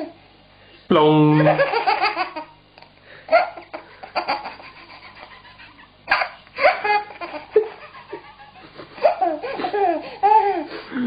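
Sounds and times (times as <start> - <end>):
man laughing: 3.3 - 11.0.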